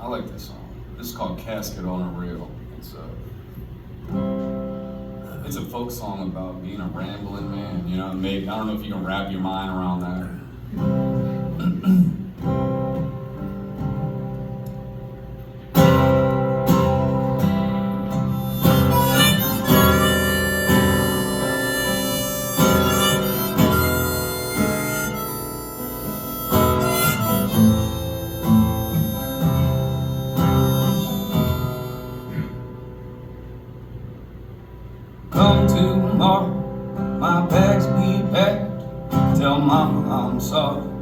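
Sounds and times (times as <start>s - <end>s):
strummed acoustic guitar: 10.6s - 33.7s, 35.3s - 41.0s
harmonica playing: 15.8s - 33.2s.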